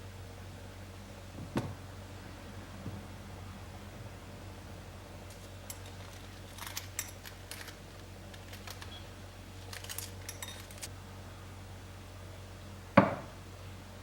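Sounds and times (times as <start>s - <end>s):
kitchenware clinking: 5.3s - 9.0s, 9.6s - 10.9s.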